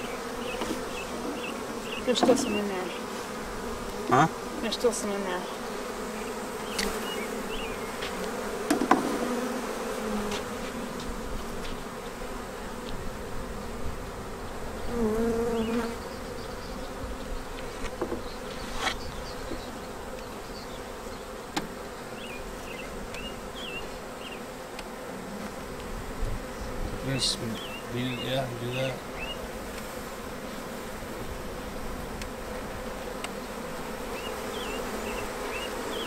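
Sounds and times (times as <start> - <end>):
bee buzzing close by: 0.0 - 36.0
bees buzzing: 0.0 - 36.0
sharp knocks: 8.7 - 9.2.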